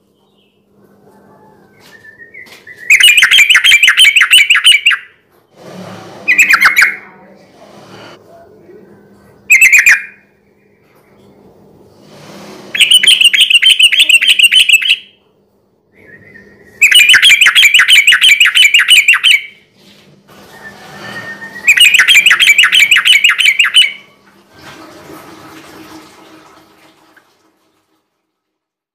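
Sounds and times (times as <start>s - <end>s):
bulbul chattering song: 2.9s - 5.1s, 6.3s - 7.1s, 9.5s - 10.2s, 12.8s - 15.2s, 16.8s - 19.6s, 21.6s - 24.1s.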